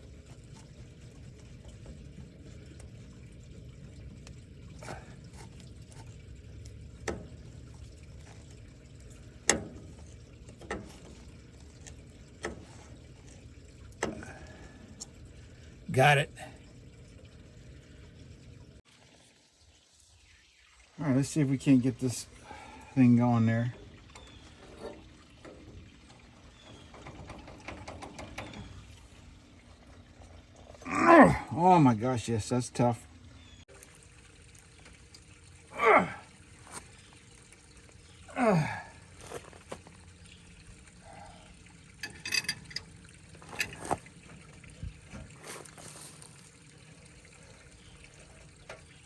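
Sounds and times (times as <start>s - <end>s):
steady low hum: 0.0s - 18.8s
hand tools clinking on metal: 42.0s - 44.0s.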